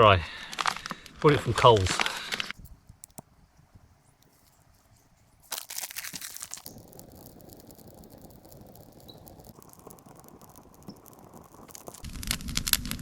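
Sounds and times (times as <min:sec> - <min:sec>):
firewood clattering: 0:00.4 - 0:02.6
packaging crinkling and tearing: 0:00.5 - 0:02.6, 0:05.4 - 0:13.0.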